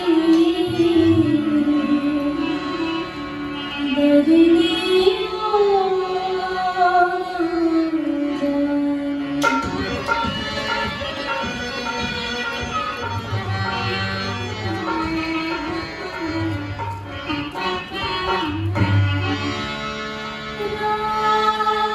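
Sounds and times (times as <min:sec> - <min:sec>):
tabla drumming: 0:00.0 - 0:05.2, 0:09.2 - 0:20.9
sarangi sliding melody: 0:00.0 - 0:21.9.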